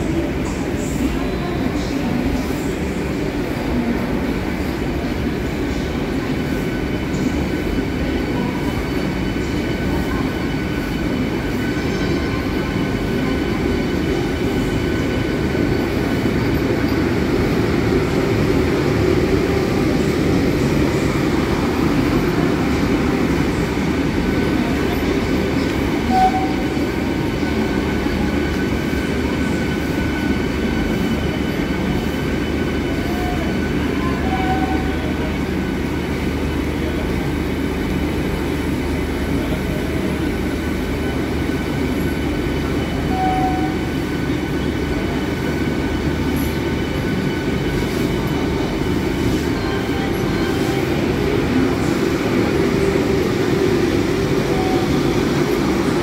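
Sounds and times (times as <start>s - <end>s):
train rumbling along track: 0.0s - 56.0s.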